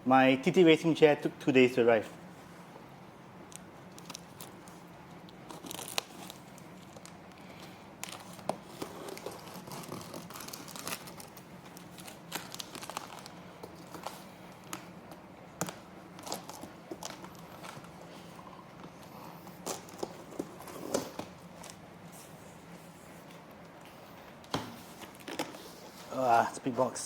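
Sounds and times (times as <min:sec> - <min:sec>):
packaging tearing and crinkling: 0:03.5 - 0:04.8, 0:05.4 - 0:07.2, 0:08.0 - 0:17.9, 0:19.6 - 0:21.8.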